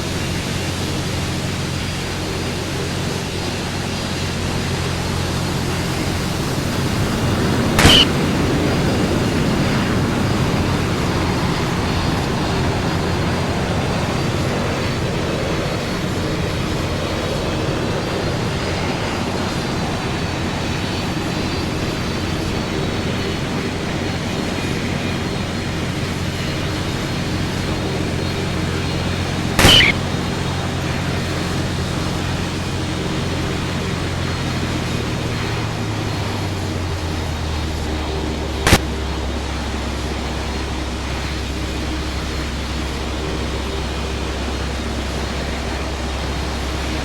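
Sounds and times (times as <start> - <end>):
aircraft turbine engines running: 0.0 - 47.0
sharp click: 7.8 - 8.2, 29.6 - 30.0.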